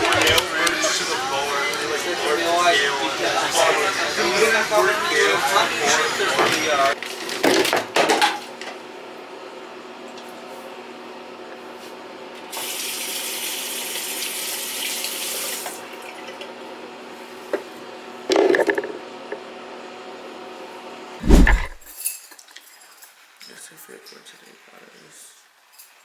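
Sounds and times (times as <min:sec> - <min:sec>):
loud thump: 0:21.2 - 0:21.9
short clatter: 0:21.2 - 0:21.9
steady hum: 0:21.2 - 0:21.9.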